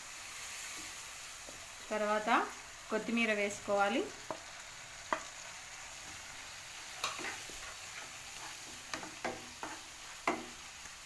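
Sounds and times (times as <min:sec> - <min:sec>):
hot oil sizzling in a pan: 0:00.0 - 0:11.0
spatula tapping and scraping pan: 0:04.2 - 0:05.4, 0:07.0 - 0:10.7.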